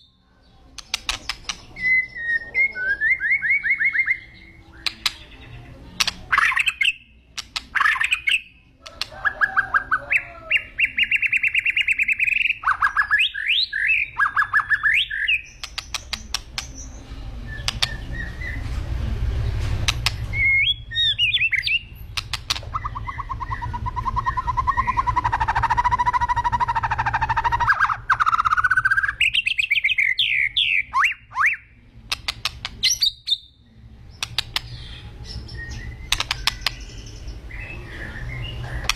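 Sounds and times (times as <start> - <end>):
bird singing varied song: 0.0 - 38.9
steady low hum: 14.2 - 29.8.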